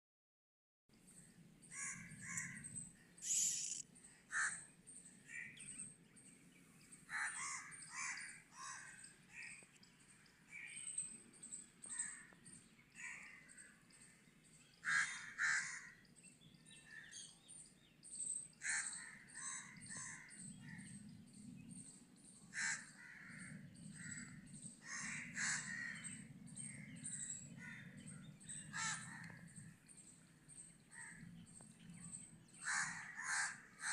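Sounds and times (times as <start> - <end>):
faint outdoor background noise: 0.9 - 33.9
birds calling: 1.7 - 4.6, 6.6 - 9.8, 18.5 - 21.9, 22.5 - 33.9.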